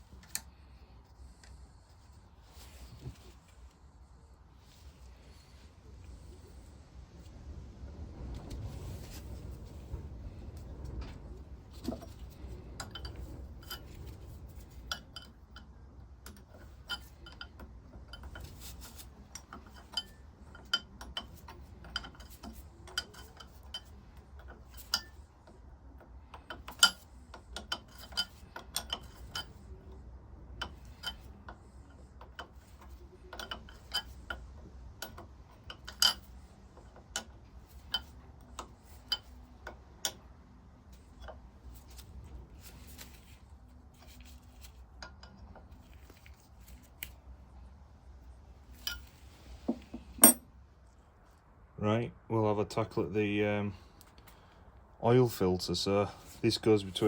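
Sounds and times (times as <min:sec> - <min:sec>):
low steady rumble: 0:00.0 - 0:57.0
metal parts and tools clinking: 0:26.5 - 0:29.7, 0:48.7 - 0:50.4.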